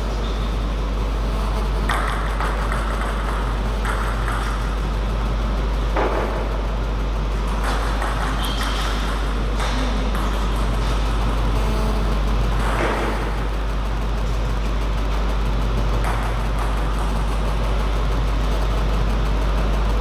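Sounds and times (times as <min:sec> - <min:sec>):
steady low hum: 0:00.0 - 0:20.0
table tennis ball knocking: 0:01.9 - 0:04.6.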